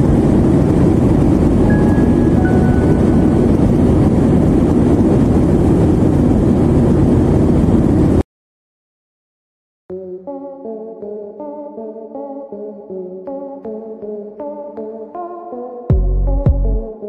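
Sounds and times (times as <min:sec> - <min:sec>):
airliner cabin engine noise: 0:00.0 - 0:08.2
cabin chime: 0:01.7 - 0:03.5.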